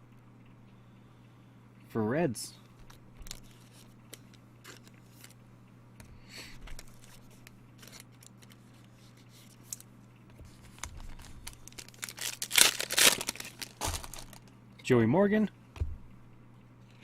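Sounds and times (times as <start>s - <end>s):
steady low hum: 0.0s - 17.0s
cards clicking and rustling: 2.8s - 5.4s, 6.5s - 9.9s, 10.5s - 14.5s.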